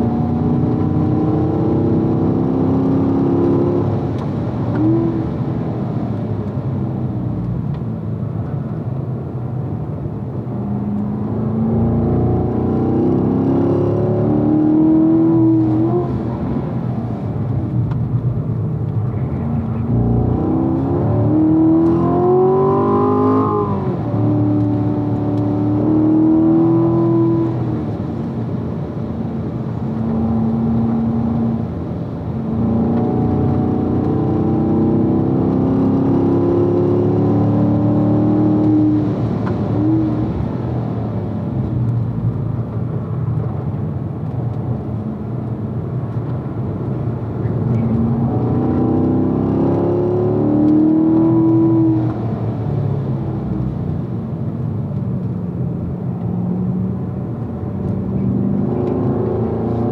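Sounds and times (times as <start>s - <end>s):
car engine pulling through gears: 0.0s - 59.9s.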